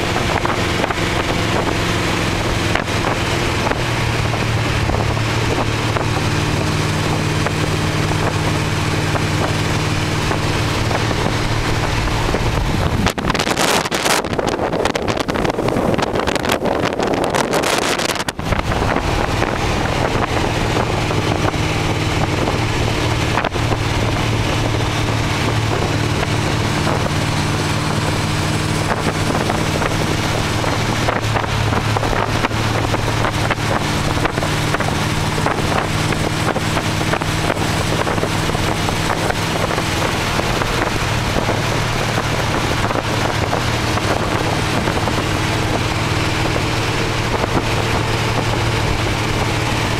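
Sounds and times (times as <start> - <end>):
car engine cruising: 0.0 - 49.9
wind rushing over microphone: 0.0 - 49.9.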